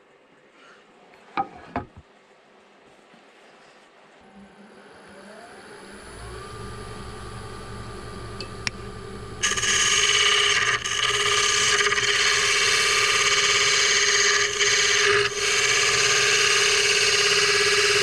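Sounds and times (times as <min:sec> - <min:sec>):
wood lathe motor whine: 0:04.2 - 0:18.0
turning tool cutting wood: 0:04.7 - 0:18.0.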